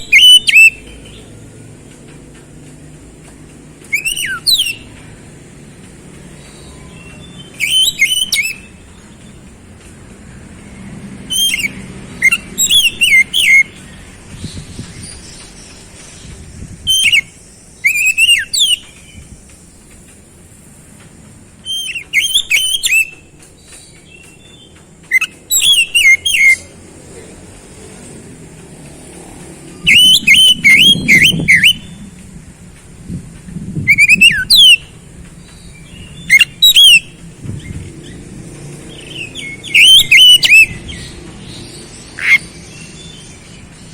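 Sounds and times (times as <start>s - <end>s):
bird singing whistled phrases: 0.0s - 1.2s, 3.9s - 4.9s, 6.7s - 8.7s, 11.3s - 13.8s, 16.9s - 19.2s, 21.7s - 23.2s, 25.1s - 26.7s, 29.8s - 32.0s, 33.9s - 34.9s, 35.9s - 37.1s, 39.1s - 41.1s, 42.2s - 43.1s.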